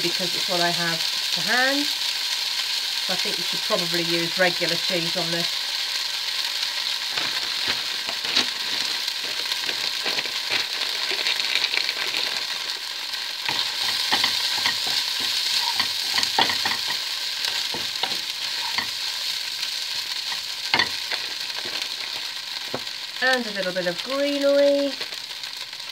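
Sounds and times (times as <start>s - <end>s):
food sizzling and popping in oil: 0.0s - 25.9s
wooden spoon stirring in pan: 6.8s - 25.8s.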